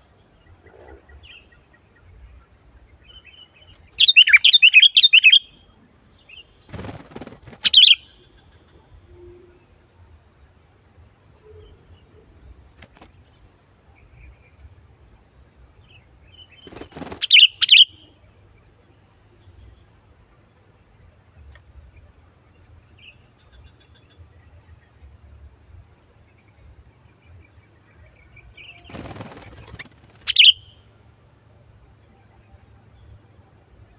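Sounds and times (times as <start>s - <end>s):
bird calls: 3.1s - 5.5s, 6.4s - 8.8s, 15.9s - 18.1s, 28.4s - 30.8s.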